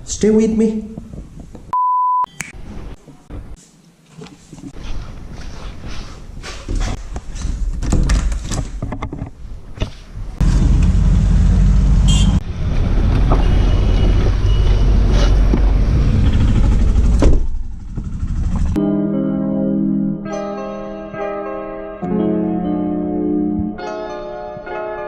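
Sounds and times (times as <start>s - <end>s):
vehicle engine rumble: 10.2s - 18.8s.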